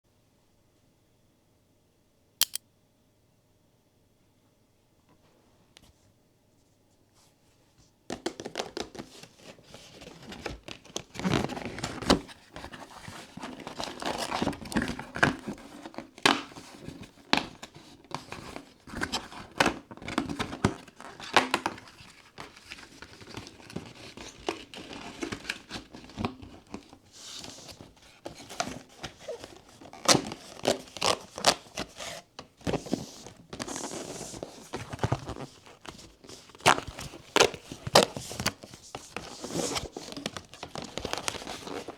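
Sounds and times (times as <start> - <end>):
plastic and paper crinkling: 18.3 - 41.9.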